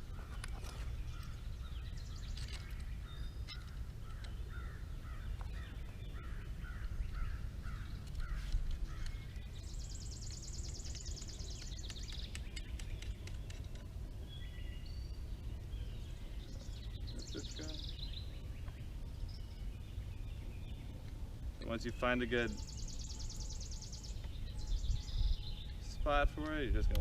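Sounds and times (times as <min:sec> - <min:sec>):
birds calling: 0:00.0 - 0:27.0
low background rumble: 0:00.0 - 0:27.0.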